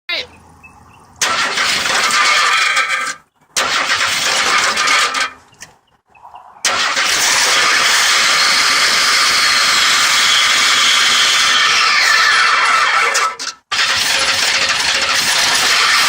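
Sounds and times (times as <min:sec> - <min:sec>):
engine cranking: 0:01.2 - 0:05.8, 0:06.6 - 0:16.0
engine running with high screech: 0:06.5 - 0:16.0.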